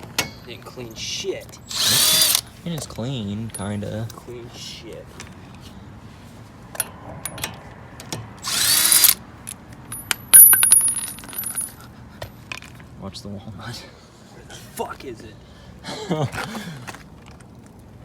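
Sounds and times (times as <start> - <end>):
power drill whirring: 1.7 - 2.4, 8.4 - 9.2
tools and metal parts clicking: 8.5 - 11.8.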